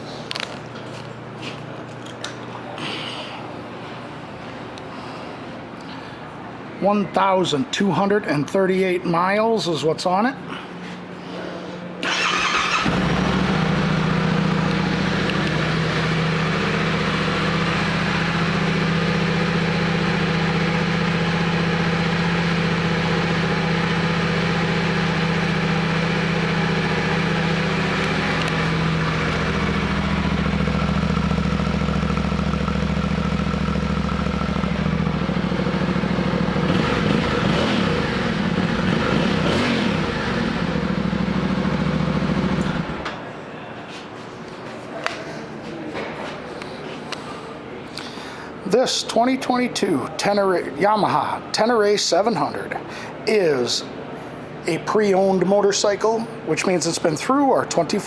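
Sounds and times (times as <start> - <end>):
motorcycle engine idling: 12.1 - 43.0.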